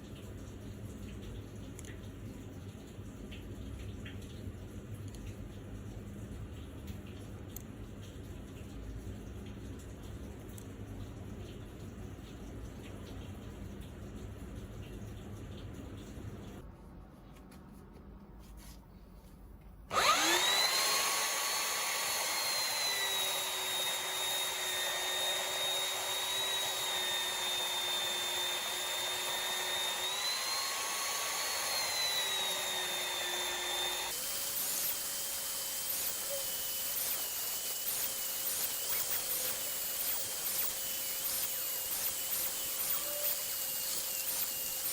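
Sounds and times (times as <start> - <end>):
electric power tool whining: 19.9 - 44.9.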